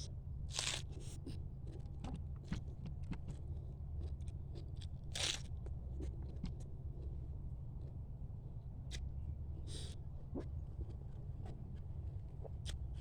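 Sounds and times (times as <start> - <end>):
steady low hum: 0.0 - 13.0
crab shell cracking and crunching: 0.5 - 0.9.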